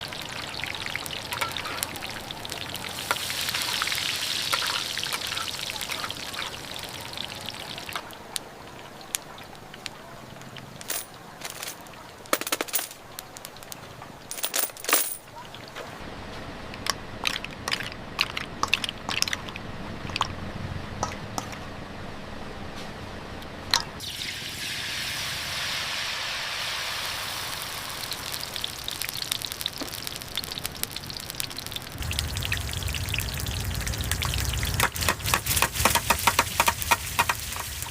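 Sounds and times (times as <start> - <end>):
pancake sizzling in hot oil: 0.0 - 8.1, 24.0 - 37.9
utensil clicks and clinks: 9.8 - 15.3, 21.0 - 21.6.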